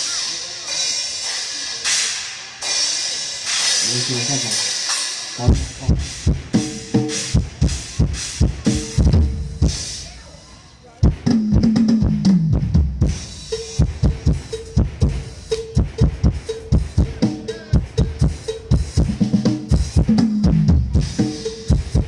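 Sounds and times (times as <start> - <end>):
tom drum fills: 0.0 - 10.3, 11.0 - 22.0
kick and snare beat: 11.0 - 22.0.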